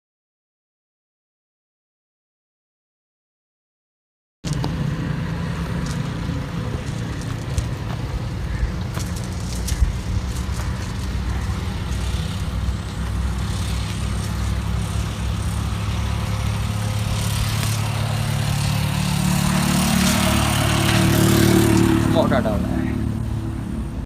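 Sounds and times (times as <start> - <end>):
vehicle engine running: 4.5 - 24.0.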